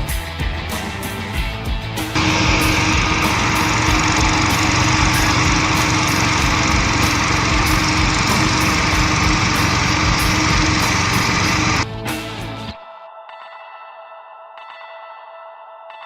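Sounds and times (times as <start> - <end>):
engine running loudly: 2.1 - 11.8.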